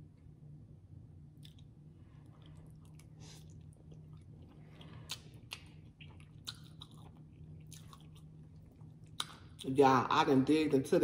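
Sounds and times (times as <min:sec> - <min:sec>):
quiet chewing of food: 0:01.2 - 0:09.7
wet mouth smacks and clicks: 0:05.1 - 0:06.9.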